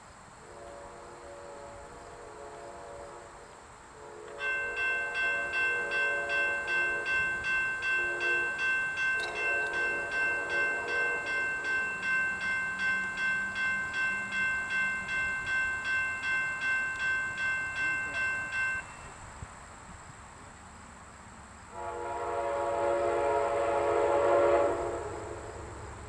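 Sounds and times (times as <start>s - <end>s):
railway crossing warning bell ringing: 4.3s - 19.3s.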